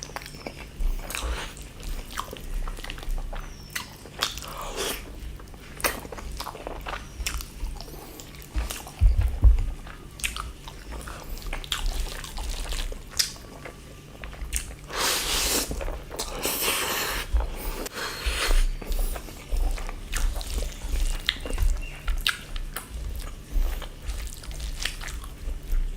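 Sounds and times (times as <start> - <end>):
chewing and crunching food: 0.0 - 25.9
dull low thumps: 6.3 - 12.1, 17.3 - 25.9
hissing slurping: 14.9 - 19.6.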